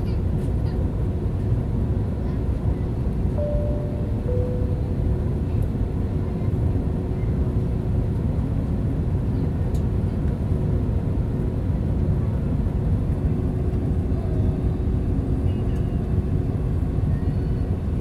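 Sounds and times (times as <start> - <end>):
faint steady hum: 3.4 - 5.6
airplane cabin rumble: 3.4 - 6.7.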